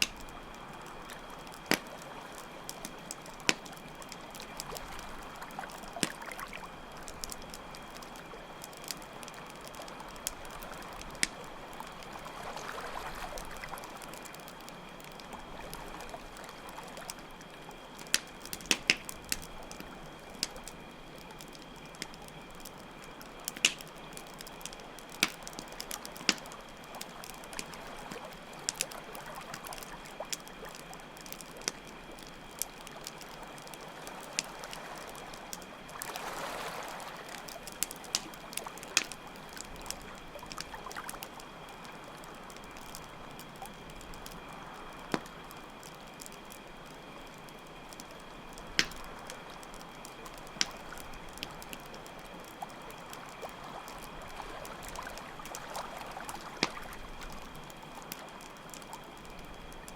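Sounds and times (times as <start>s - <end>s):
campfire crackling and popping: 0.0s - 59.9s
crickets chirping: 0.0s - 59.9s
water washing in swells: 33.8s - 37.6s.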